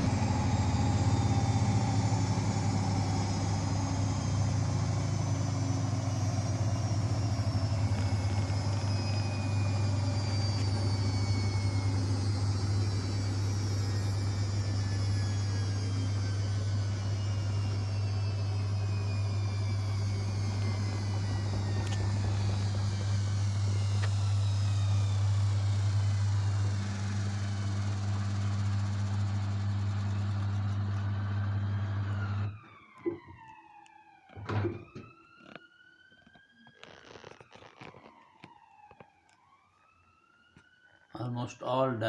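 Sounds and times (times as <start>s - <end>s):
washing machine spinning: 0.0s - 33.5s.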